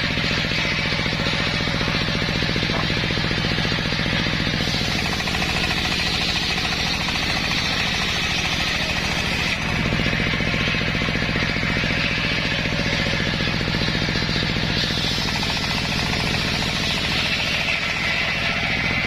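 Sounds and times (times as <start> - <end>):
saw blade cutting wood: 0.0 - 19.0
sawmill engine running: 0.0 - 19.0.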